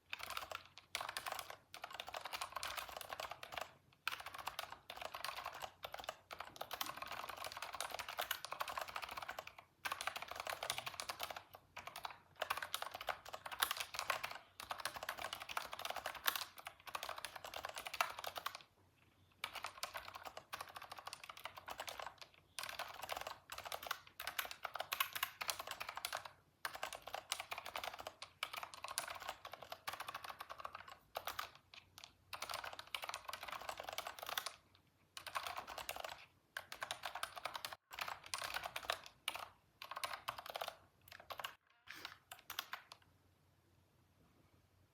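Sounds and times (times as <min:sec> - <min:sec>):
typing on computer keyboard: 0:00.0 - 0:18.7, 0:19.4 - 0:43.1.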